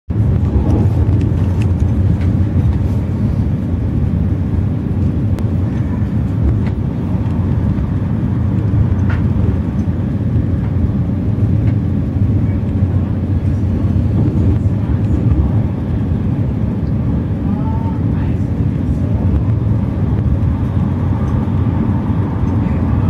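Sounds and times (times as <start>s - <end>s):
train rumbling at speed: 0.1s - 23.0s
faint clicks and rattles: 0.3s - 3.1s, 5.0s - 12.8s.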